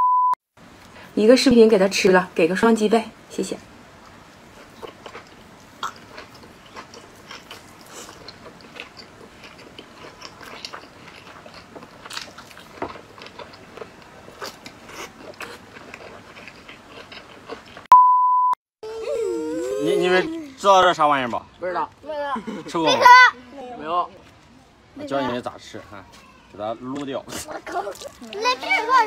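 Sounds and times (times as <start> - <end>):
loud steady beep: 0.0 - 0.4, 17.9 - 18.6
mouth chewing meat: 4.5 - 17.9.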